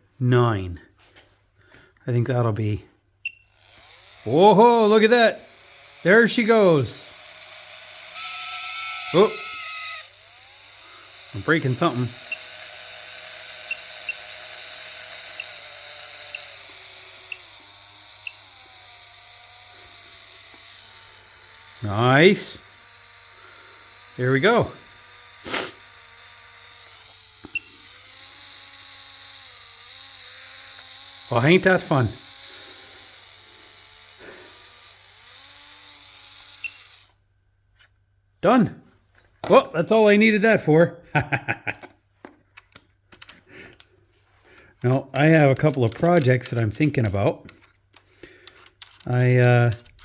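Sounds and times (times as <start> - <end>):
small electric motor whining: 3.2 - 38.0.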